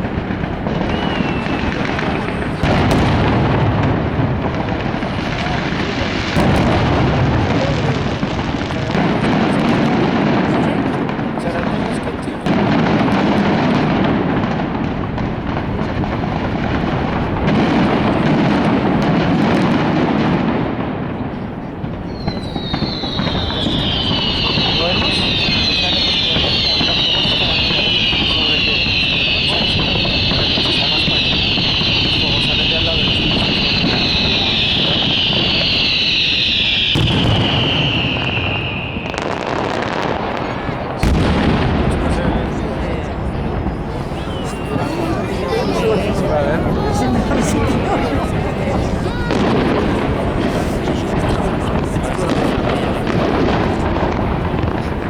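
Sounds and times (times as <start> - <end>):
fireworks bangs and crackle: 0.0 - 55.0
firework whistle sliding down: 0.7 - 2.6, 22.1 - 40.0, 44.0 - 48.4.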